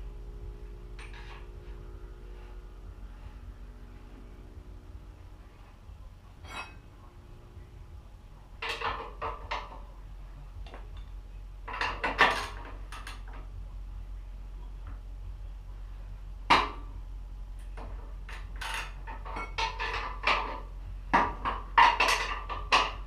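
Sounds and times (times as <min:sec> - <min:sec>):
steady low hum: 0:00.0 - 0:23.0
metal tools clinking: 0:06.4 - 0:06.9.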